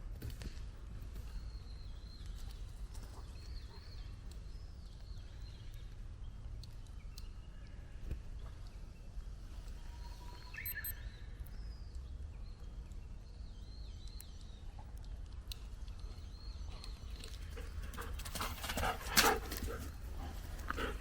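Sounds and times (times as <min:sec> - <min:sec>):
faint bird chirps: 0:06.9 - 0:15.1.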